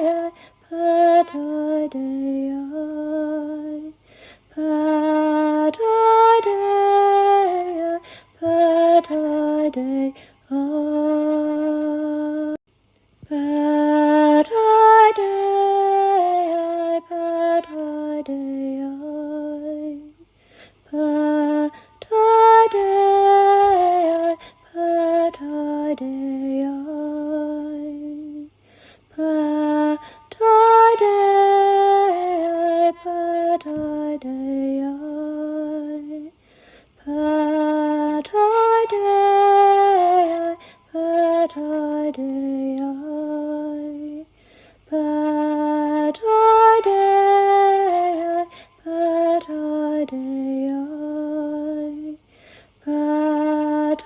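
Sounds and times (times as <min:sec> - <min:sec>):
woman singing slow phrases: 0:00.0 - 0:12.6, 0:13.2 - 0:36.4, 0:37.0 - 0:54.0
woman breathing: 0:00.3 - 0:00.6, 0:04.0 - 0:04.5, 0:08.0 - 0:08.4, 0:10.2 - 0:10.4, 0:20.3 - 0:20.8, 0:24.4 - 0:24.7, 0:28.5 - 0:29.1, 0:36.4 - 0:37.0, 0:40.6 - 0:40.9, 0:44.3 - 0:44.9, 0:48.5 - 0:48.8, 0:52.2 - 0:52.8.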